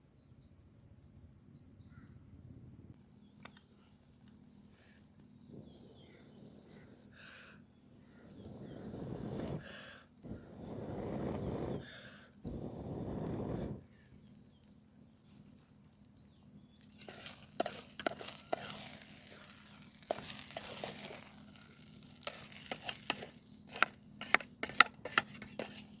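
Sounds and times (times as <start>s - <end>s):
insect chirping in high clicks: 0.0s - 26.0s
soft hiss: 4.4s - 16.1s.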